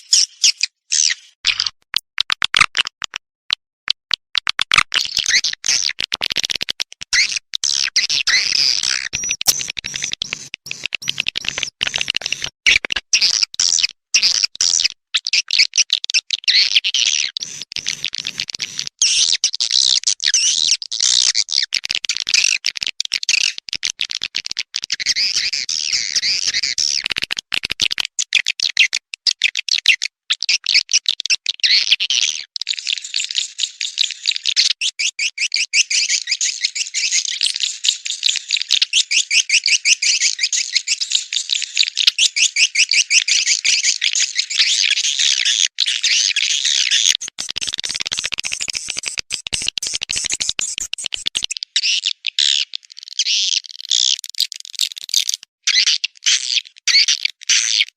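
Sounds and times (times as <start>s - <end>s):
swiftlets twittering: 8.3s - 12.6s.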